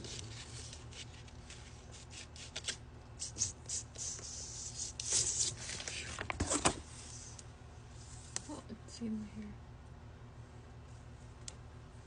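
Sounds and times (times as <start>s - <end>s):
paper and cardboard rustling: 4.9s - 7.4s.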